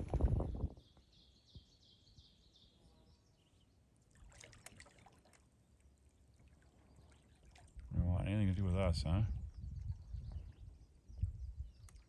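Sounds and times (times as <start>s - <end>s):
songbird high chirps: 0.6s - 3.9s, 9.0s - 12.0s
soft clicks and splashes: 4.1s - 8.0s, 11.2s - 12.0s.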